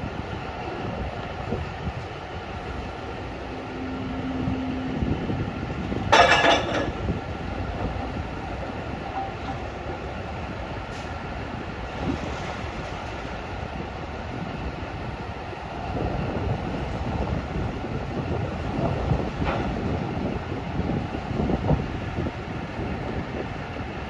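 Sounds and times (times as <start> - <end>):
heavy mining machinery running: 0.0 - 24.0
low steady tone: 2.6 - 10.2
metallic clank with ringing: 6.1 - 7.1.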